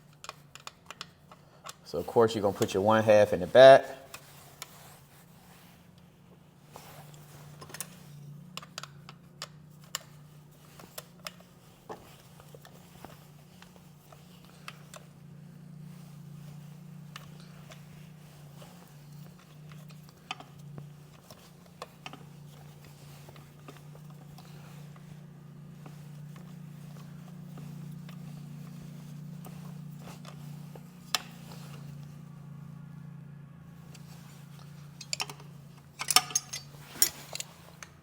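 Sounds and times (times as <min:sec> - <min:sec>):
hand tools clicking on metal: 0:35.0 - 0:38.0.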